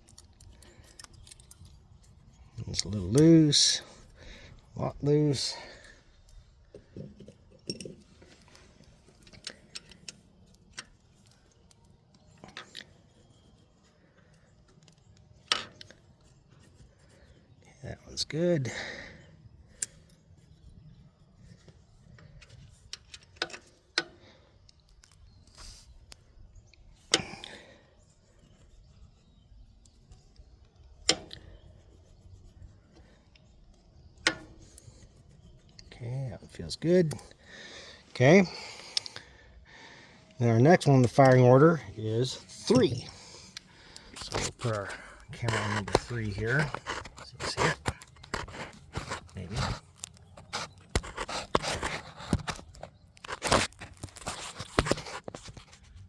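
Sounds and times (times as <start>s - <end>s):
metallic clicks of hand tools: 31.1s - 31.5s.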